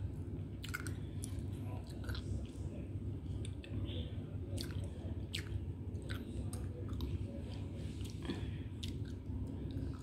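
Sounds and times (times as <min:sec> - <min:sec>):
steady low hum: 0:00.0 - 0:10.0
person chewing: 0:00.6 - 0:02.6, 0:04.5 - 0:10.0.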